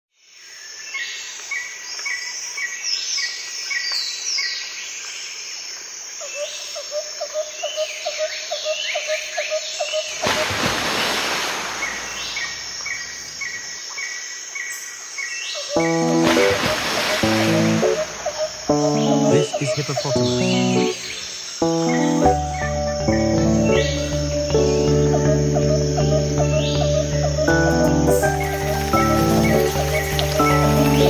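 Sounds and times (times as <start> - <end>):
birds chirping and calling: 15.2 - 31.0
rapid lower chirps: 15.8 - 31.0.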